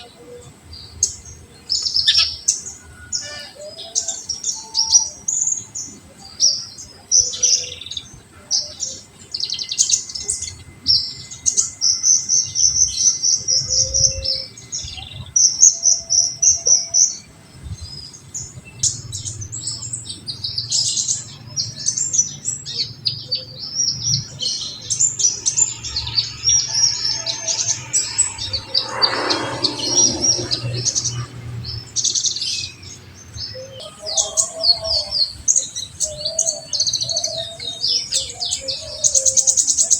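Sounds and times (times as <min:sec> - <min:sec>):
sunbird chirping and trilling: 0:17.1 - 0:35.4
noisy sweep falling in pitch: 0:25.2 - 0:31.9.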